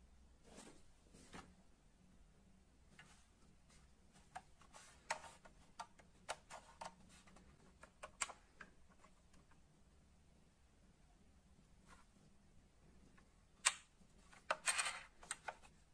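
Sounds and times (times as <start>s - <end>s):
small irregular clicks and taps: 4.2s - 9.6s, 13.1s - 15.8s.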